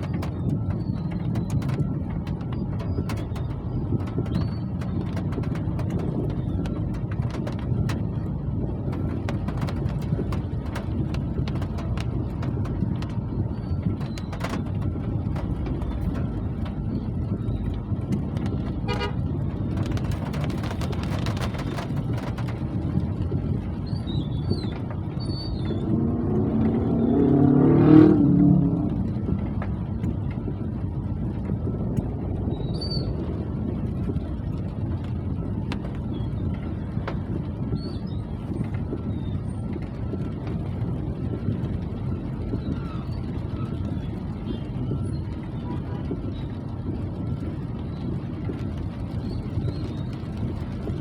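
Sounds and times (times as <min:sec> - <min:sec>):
road traffic rumble: 0:00.0 - 0:51.0
vehicle passing close by: 0:25.8 - 0:29.1.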